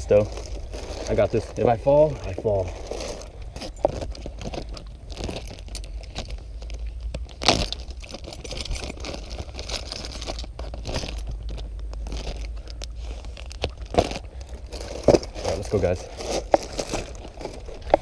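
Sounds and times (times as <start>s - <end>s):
crinkling and scraping handling: 0.0s - 18.0s.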